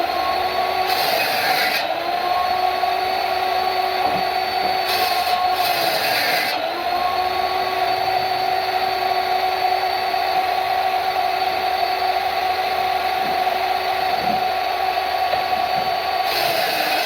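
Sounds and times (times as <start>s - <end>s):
power tool whining: 0.0s - 17.0s.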